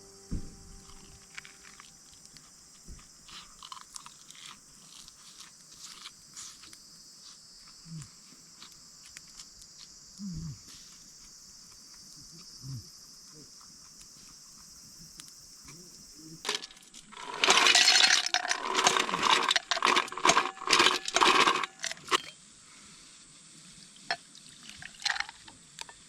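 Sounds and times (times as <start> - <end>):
faint high hiss: 0.0 - 3.6, 22.2 - 26.0
metal clinks: 16.5 - 22.4.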